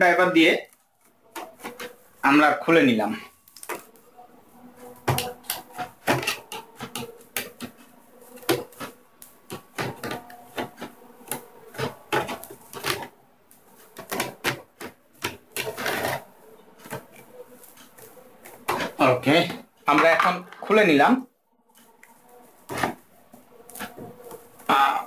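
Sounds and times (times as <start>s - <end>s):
plastic parts clicking and tapping: 4.9s - 20.8s.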